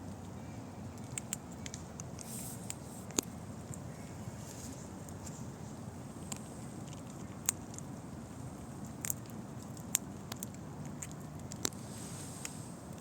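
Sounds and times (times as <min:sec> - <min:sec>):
squirrel cracking nut shells: 0:00.0 - 0:04.2, 0:06.3 - 0:11.8
low background rumble: 0:00.0 - 0:13.0.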